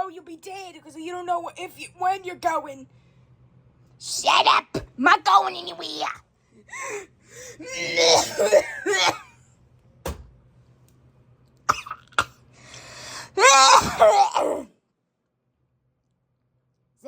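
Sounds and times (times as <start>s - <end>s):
person coughing: 7.6s - 9.4s, 11.7s - 12.4s.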